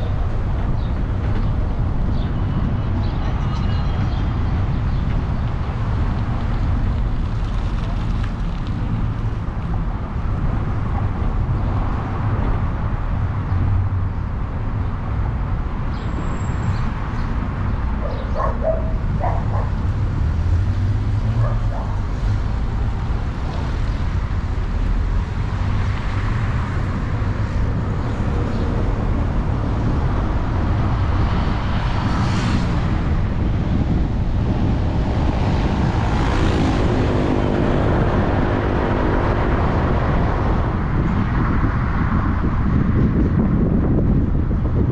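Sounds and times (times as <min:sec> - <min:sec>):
vehicle road and engine rumble: 0:00.0 - 0:44.9.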